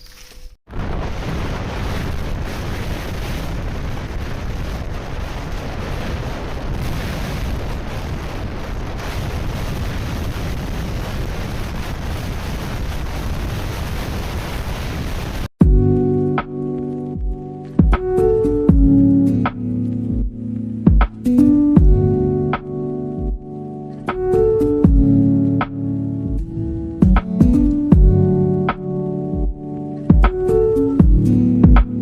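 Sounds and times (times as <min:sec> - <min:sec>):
wind buffeting microphone: 0:00.7 - 0:15.5.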